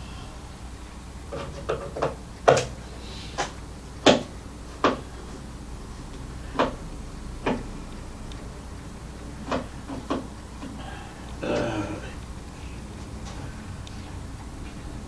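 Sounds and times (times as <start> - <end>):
knocks and clunks of tools: 1.3 - 2.8, 9.4 - 10.8.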